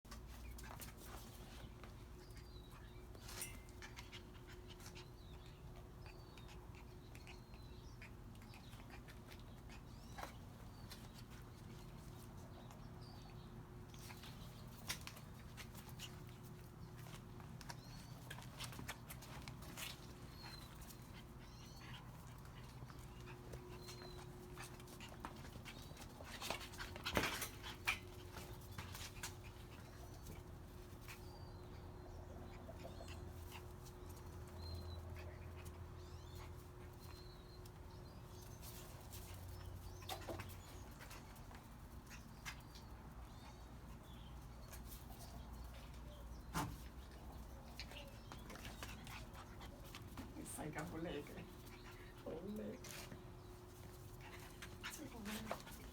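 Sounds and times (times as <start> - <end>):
puppies squeaking and whimpering: 20.2 - 30.2.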